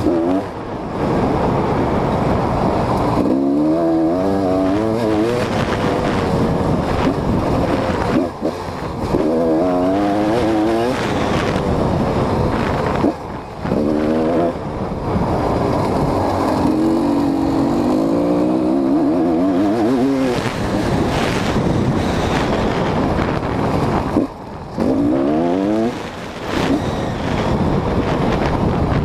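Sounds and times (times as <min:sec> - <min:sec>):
dirt bike engine revving: 0:00.0 - 0:00.6, 0:03.0 - 0:14.6, 0:15.5 - 0:28.5
wind noise: 0:00.0 - 0:29.0.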